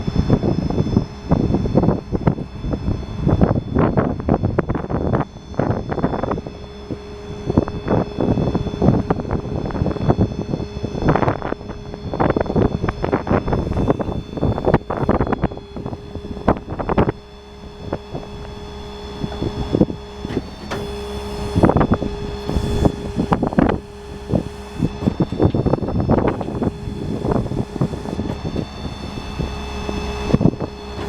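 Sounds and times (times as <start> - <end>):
diesel truck engine running: 0.0 - 31.0
hydraulic system whine: 0.0 - 31.0
knocks and clunks: 19.2 - 31.0.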